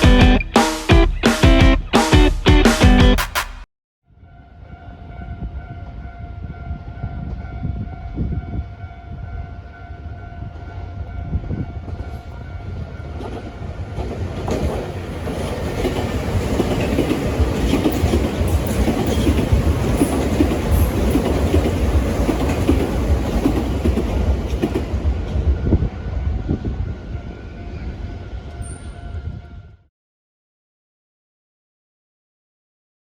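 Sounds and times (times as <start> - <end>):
train wheels clacking on rails: 11.8 - 25.8.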